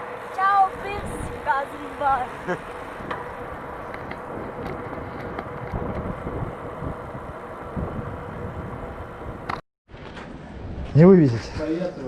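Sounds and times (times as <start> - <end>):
wind buffeting microphone: 0.6 - 11.8.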